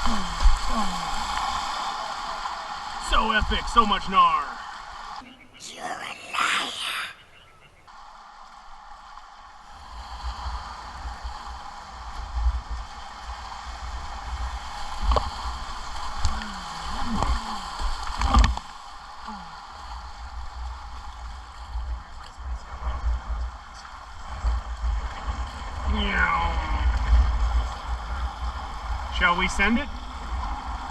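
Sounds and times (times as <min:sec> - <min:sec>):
whitewater river rushing: 0:00.0 - 0:05.2, 0:25.6 - 0:28.3.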